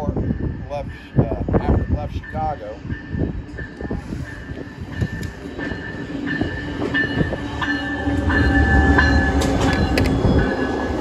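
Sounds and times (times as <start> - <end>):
diesel locomotive passing: 0.0 - 11.0
train wheels on rails: 0.0 - 11.0.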